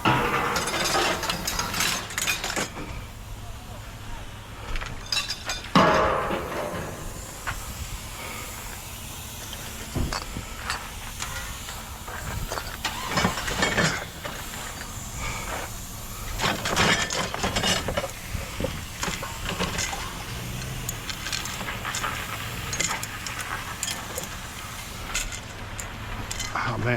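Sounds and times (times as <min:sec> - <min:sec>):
metal scraping and sliding: 0:00.0 - 0:03.1, 0:04.8 - 0:08.8, 0:09.4 - 0:26.9
scrap metal clanking: 0:00.0 - 0:03.2, 0:04.7 - 0:26.9
steady low rumble: 0:02.2 - 0:12.8.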